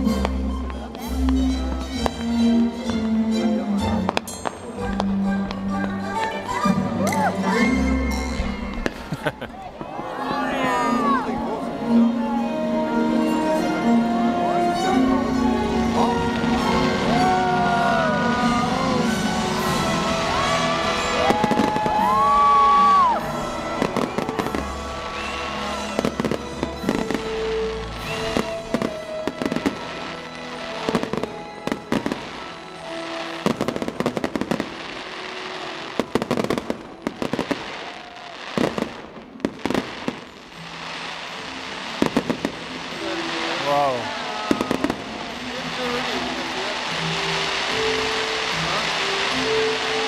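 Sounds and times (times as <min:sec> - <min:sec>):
firework bangs and crackles: 0:00.0 - 0:12.1, 0:13.2 - 0:50.0
loud music: 0:10.7 - 0:35.0.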